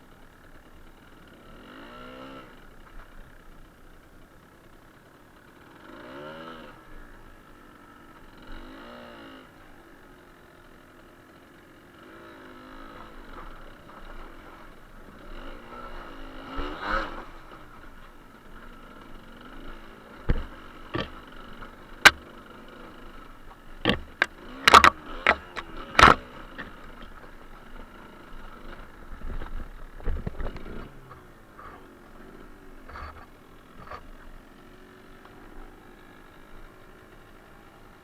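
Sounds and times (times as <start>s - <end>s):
two-stroke motorcycle engine revving: 0.2s - 38.0s
sharp knocks and clatters: 20.2s - 22.9s, 23.5s - 27.4s.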